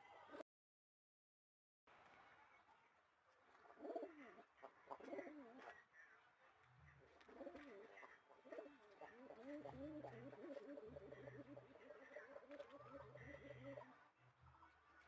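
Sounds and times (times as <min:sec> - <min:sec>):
dove cooing: 0:03.7 - 0:05.9, 0:07.1 - 0:14.0.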